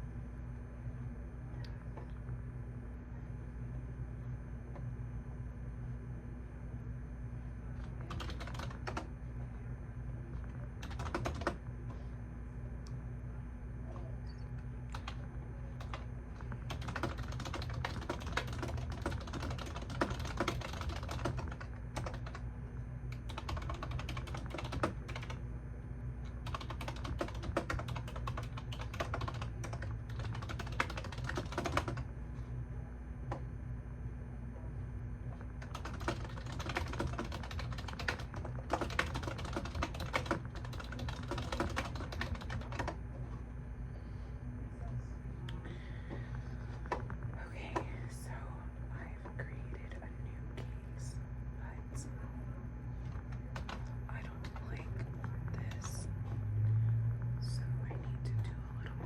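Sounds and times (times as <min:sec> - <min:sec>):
low steady hum: 0:00.0 - 0:59.0
typing on a keyboard: 0:07.8 - 0:09.1, 0:10.8 - 0:11.6, 0:14.9 - 0:15.2, 0:15.8 - 0:22.4, 0:23.1 - 0:25.4, 0:26.4 - 0:32.0, 0:35.6 - 0:43.0, 0:53.1 - 0:54.8.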